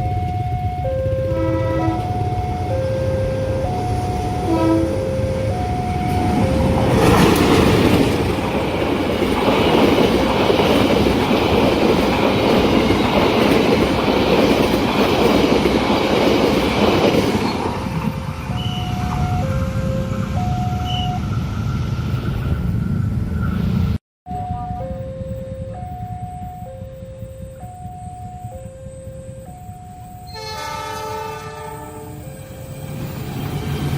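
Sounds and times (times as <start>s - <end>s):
two-note crossing warning chime: 0.0s - 7.2s, 18.5s - 21.2s, 24.3s - 30.6s
train wheels clacking over rails: 6.0s - 19.3s.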